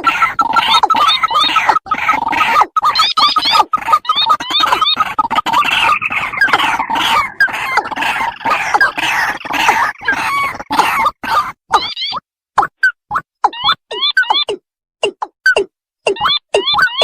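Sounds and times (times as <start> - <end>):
recorded waterhen calls: 0.0 - 12.1.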